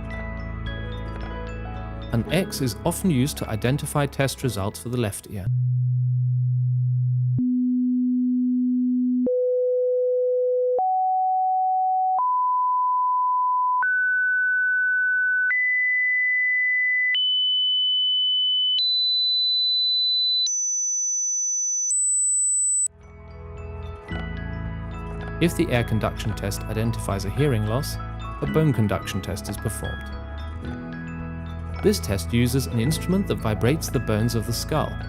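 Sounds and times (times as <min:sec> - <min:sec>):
hearing test beeps rising in pitch: 0:18.8 - 0:22.9.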